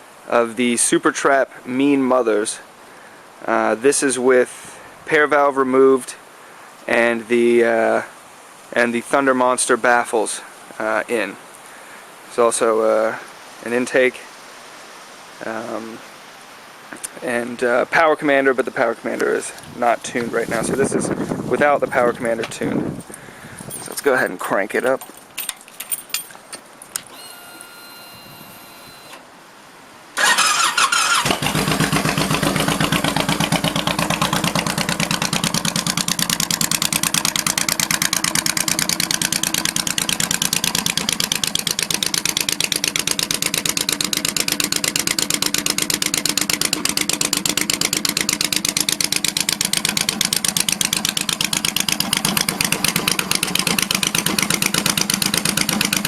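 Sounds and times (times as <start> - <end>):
motorcycle starting and idling: 30.2 - 56.0.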